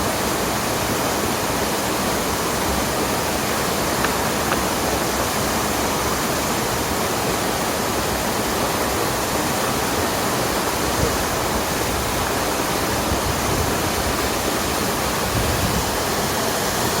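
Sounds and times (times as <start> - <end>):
rushing stream water: 0.0 - 17.0.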